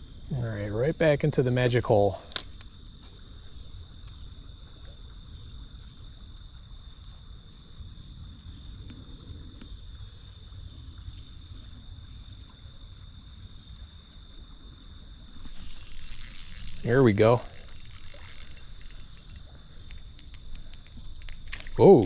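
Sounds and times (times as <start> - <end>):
insect trill: 0.0 - 22.0.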